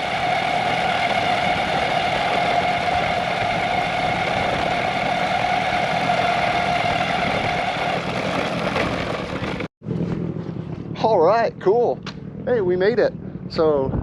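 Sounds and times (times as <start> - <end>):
electric motor whine: 0.0 - 8.8
wheel and wind noise: 0.0 - 14.0.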